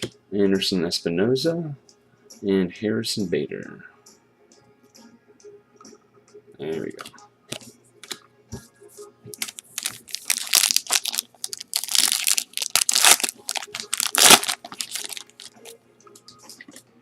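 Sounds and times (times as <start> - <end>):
wrapper crinkling: 9.4 - 15.7.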